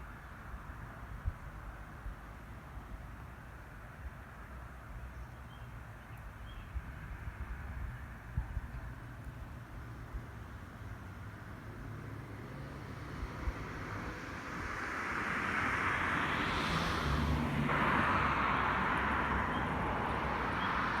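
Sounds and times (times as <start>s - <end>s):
passing vehicle: 6.8s - 21.0s.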